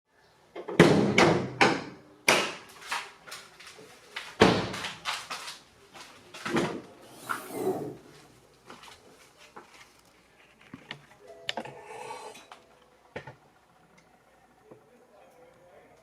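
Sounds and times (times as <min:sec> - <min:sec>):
sharp knocks and clunks: 0:00.6 - 0:02.7.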